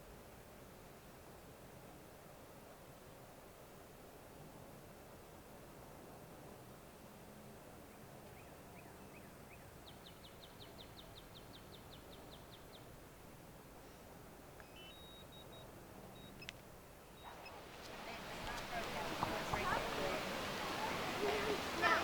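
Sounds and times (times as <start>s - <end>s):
low steady background noise: 0.0s - 22.0s
faint bird song: 7.1s - 13.2s, 13.8s - 18.8s.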